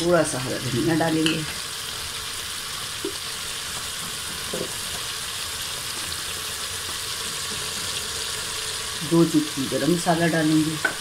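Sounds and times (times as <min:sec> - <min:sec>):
curry sizzling in oil: 0:00.0 - 0:11.0.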